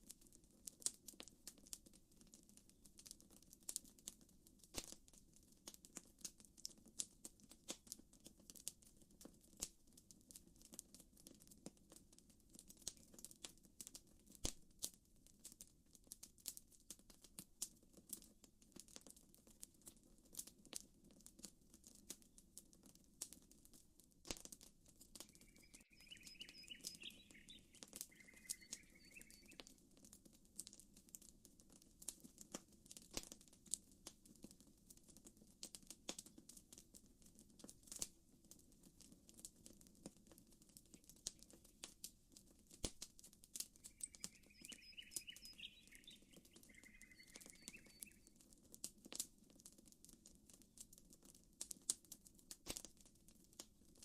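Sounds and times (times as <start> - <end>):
campfire crackling and popping: 0.0 - 54.0
bird chirping: 25.2 - 29.7, 43.8 - 48.4.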